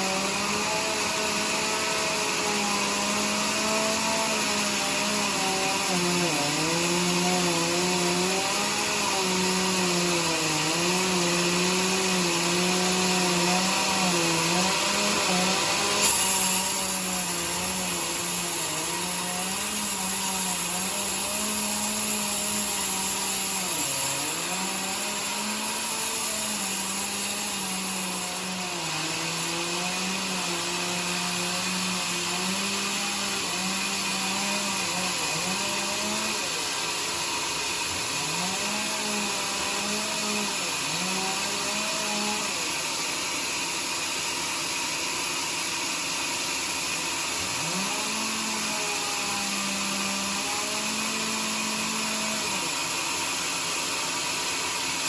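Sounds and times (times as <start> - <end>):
sawmill machine hum: 0.0 - 55.0
high-pitched cutting hiss: 15.7 - 29.2.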